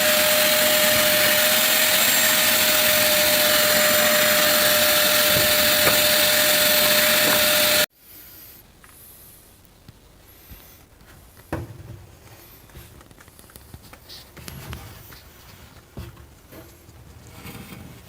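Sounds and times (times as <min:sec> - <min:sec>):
vacuum cleaner whine: 0:00.0 - 0:07.9
small knocks: 0:03.4 - 0:07.8, 0:11.4 - 0:12.8
loud thump: 0:11.5 - 0:12.3.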